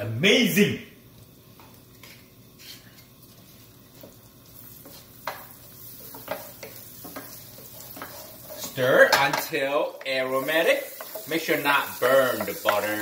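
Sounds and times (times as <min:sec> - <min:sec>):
oil sizzling in a frying pan: 0:01.0 - 0:13.0
wooden spatula scraping a pan: 0:02.0 - 0:09.4.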